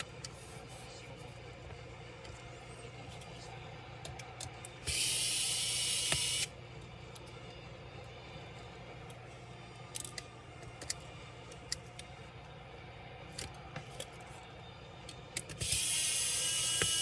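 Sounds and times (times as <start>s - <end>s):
clicks of tools and small parts: 4.0s - 5.0s, 9.9s - 12.1s, 13.3s - 14.3s, 15.1s - 16.0s.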